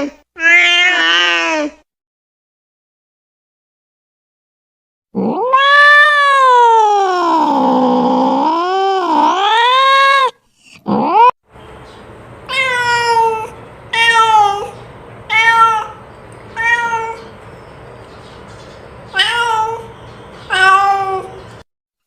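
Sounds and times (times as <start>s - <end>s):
cat meowing: 0.4s - 1.7s, 5.2s - 11.3s, 12.5s - 17.3s, 19.1s - 19.9s, 20.5s - 21.6s
cat yowling: 0.4s - 1.7s, 5.2s - 11.3s, 12.5s - 17.3s, 19.1s - 19.9s, 20.5s - 21.4s.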